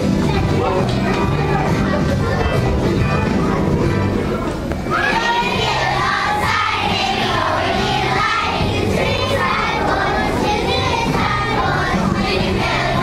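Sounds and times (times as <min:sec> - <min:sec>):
musical accompaniment: 0:00.0 - 0:13.0
young children singing together: 0:04.9 - 0:13.0.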